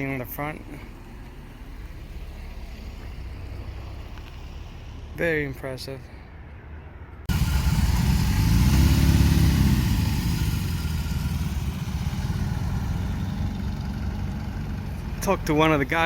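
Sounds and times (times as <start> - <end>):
motorcycle engine revving: 7.3 - 15.6.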